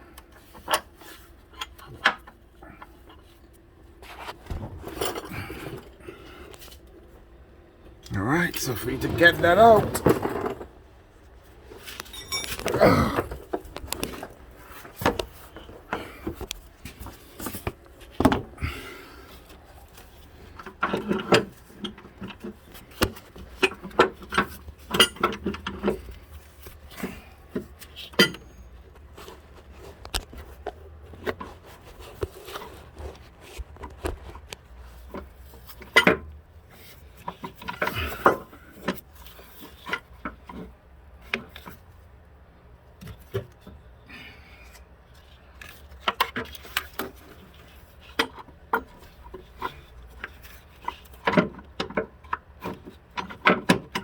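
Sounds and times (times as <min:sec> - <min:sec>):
hand tools clinking on metal: 0:11.9 - 0:13.4.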